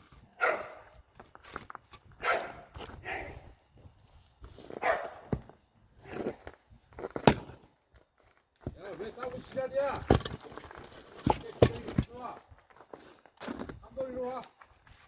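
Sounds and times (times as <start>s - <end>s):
dogs barking and snarling: 0.3s - 1.0s, 2.2s - 3.5s, 4.7s - 5.3s.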